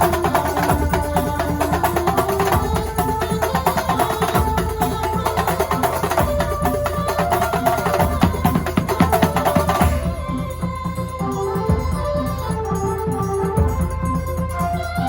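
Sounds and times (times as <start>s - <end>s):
fast dense drumming: 0.0s - 11.1s.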